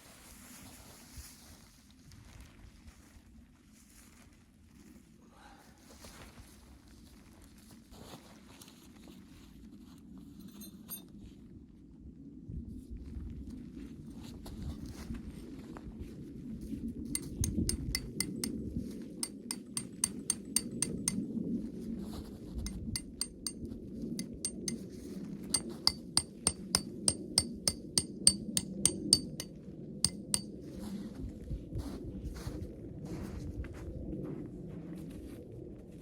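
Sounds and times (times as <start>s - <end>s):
light clinks of hard object: 17.2s - 18.6s, 19.2s - 21.2s, 22.7s - 23.6s, 24.2s - 24.8s, 25.6s - 29.5s, 30.1s - 30.5s.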